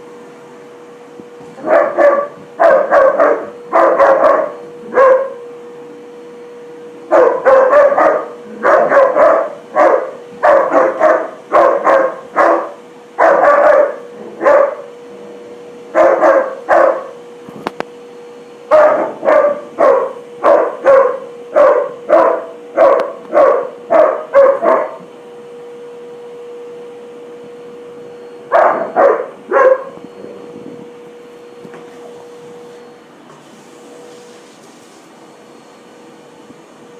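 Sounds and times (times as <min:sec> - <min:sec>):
steady hum: 0:00.0 - 0:36.9
dog barking: 0:01.6 - 0:05.4, 0:07.1 - 0:14.9, 0:15.9 - 0:17.2, 0:18.7 - 0:25.1, 0:28.5 - 0:30.0.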